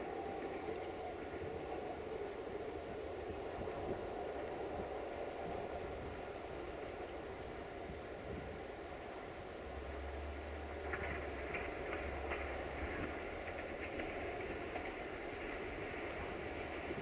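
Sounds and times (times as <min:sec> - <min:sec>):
distant train rumble: 0:00.0 - 0:17.0
faint clicks: 0:10.3 - 0:17.0.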